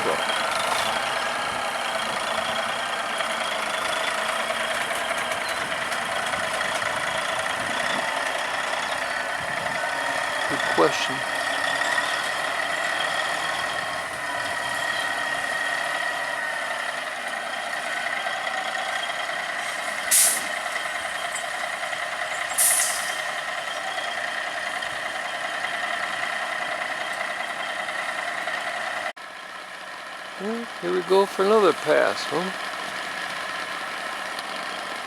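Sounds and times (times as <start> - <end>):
truck running with a whine: 0.0 - 35.0
air brakes hissing: 19.6 - 20.6, 22.5 - 23.4.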